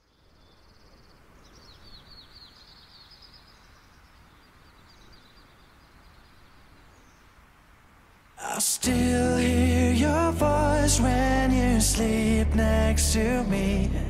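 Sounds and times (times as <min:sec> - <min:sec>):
small birds chirping: 0:00.0 - 0:08.7
low rumbling haze: 0:08.8 - 0:14.0.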